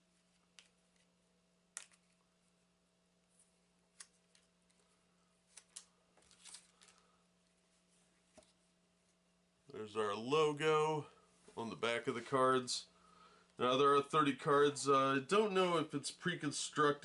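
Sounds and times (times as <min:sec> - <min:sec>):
cards and rubber bands clicking: 0:01.7 - 0:02.2.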